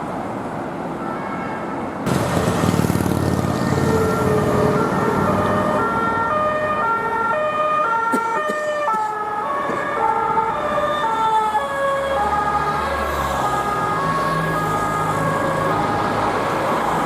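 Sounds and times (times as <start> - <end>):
road traffic: 0.0 - 17.0
two-tone police siren: 3.6 - 17.0.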